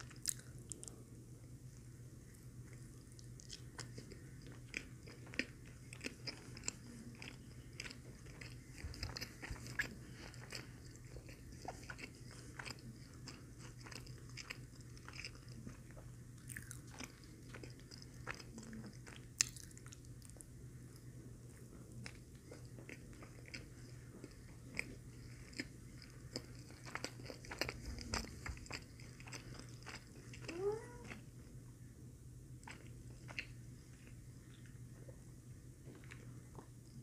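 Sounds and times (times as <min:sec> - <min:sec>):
chewing with wet mouth clicks: 0:00.0 - 0:01.0, 0:02.7 - 0:31.2, 0:32.6 - 0:35.1.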